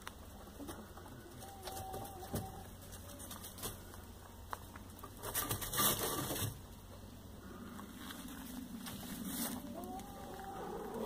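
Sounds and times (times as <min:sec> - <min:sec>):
rustling noise: 0:02.0 - 0:06.8, 0:07.6 - 0:11.0.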